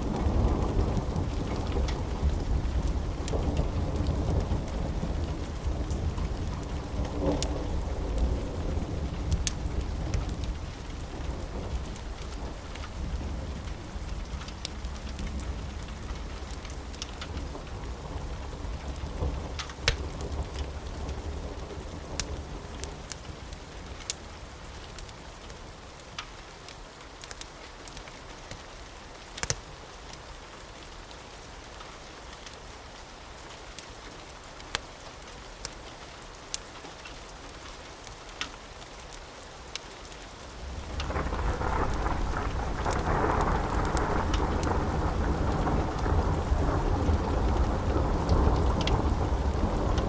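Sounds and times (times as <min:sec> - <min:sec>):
low thunder rumble: 0:00.0 - 0:22.7, 0:40.6 - 0:50.0
rain with sharp ticks: 0:00.0 - 0:50.0.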